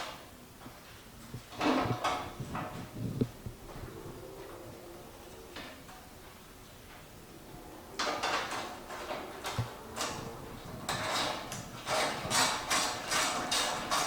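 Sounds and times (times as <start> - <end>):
plastic and metal parts scraping: 8.0 - 14.0.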